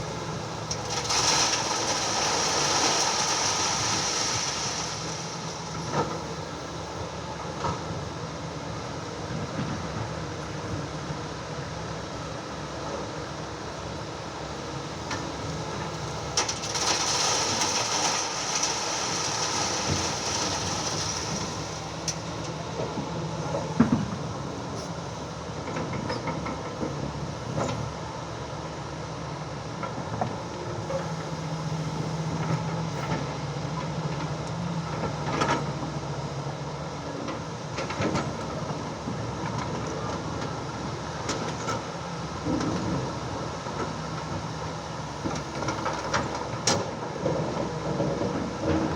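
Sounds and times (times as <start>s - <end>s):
excavator diesel engine running: 0.0s - 48.9s
hiss: 0.9s - 5.7s.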